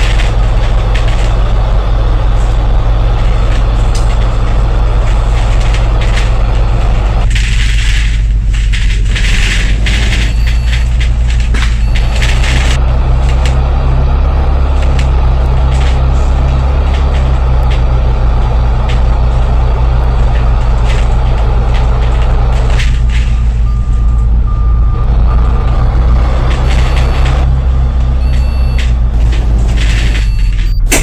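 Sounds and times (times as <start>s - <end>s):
light clicks and rattles: 0.0s - 13.7s, 14.7s - 31.0s
bus diesel engine running: 0.0s - 31.0s.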